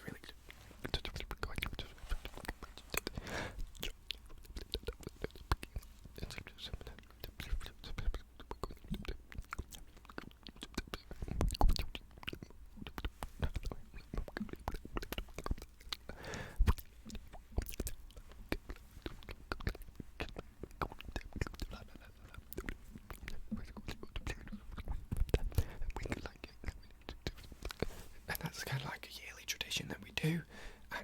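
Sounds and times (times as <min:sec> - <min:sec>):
faint whispering: 0:00.0 - 0:09.2, 0:10.6 - 0:31.0
wet mouth clicks and smacks: 0:00.9 - 0:28.6.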